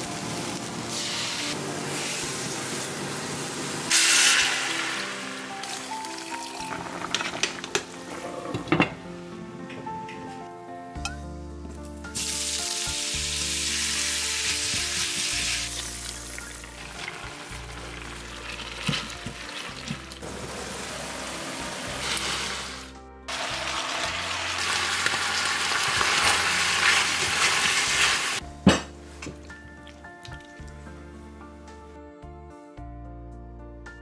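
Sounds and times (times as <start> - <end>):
food sizzling in hot oil: 0.0 - 8.0, 12.1 - 28.4.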